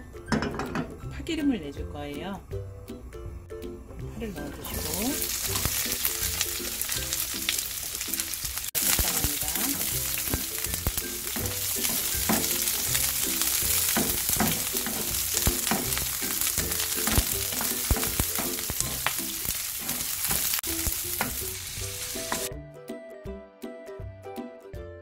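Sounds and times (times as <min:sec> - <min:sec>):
faint background music: 0:00.0 - 0:19.5
onions sizzling in hot oil: 0:04.3 - 0:22.5
spatula scraping pan: 0:09.5 - 0:20.6.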